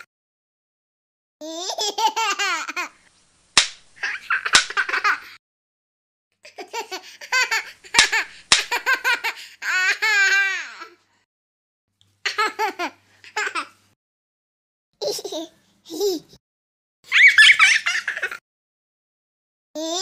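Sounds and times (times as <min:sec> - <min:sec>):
high-pitched human laughter: 0:17.1 - 0:18.4.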